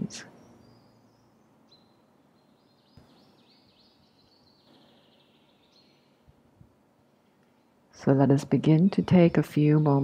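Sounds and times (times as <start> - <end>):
bird chirping: 0.0 - 6.4.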